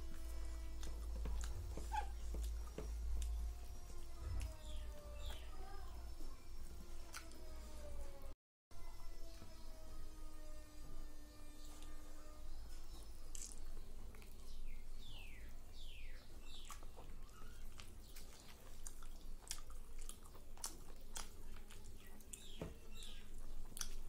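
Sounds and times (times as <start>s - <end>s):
wet chewing and mouth smacks: 0.7s - 5.5s, 13.3s - 14.6s, 16.4s - 24.0s.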